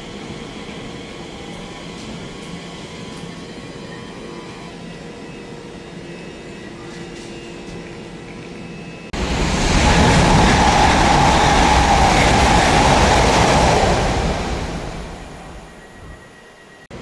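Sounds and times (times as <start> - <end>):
train wheels rushing on rail: 9.2 - 16.8.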